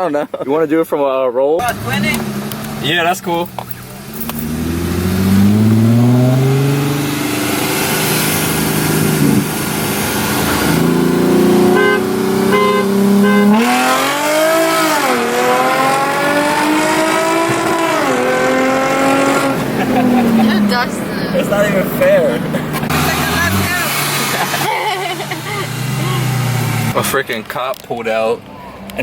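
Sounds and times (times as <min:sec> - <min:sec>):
car engine revving: 0:01.6 - 0:29.0
car horn beeps: 0:10.8 - 0:14.8.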